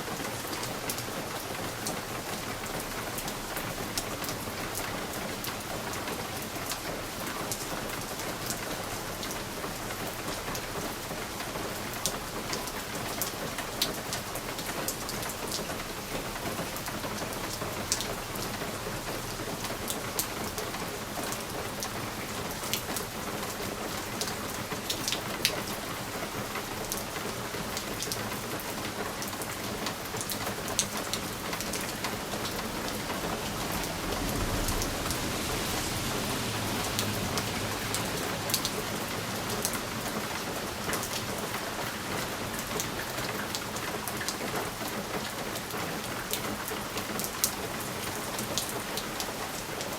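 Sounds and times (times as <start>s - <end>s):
rain hissing: 29.7s - 42.8s.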